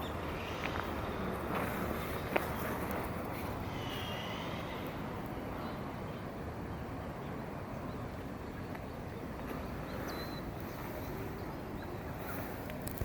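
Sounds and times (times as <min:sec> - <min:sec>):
rushing outdoor background noise: 0:00.0 - 0:13.0
faint high chirp: 0:09.6 - 0:12.5.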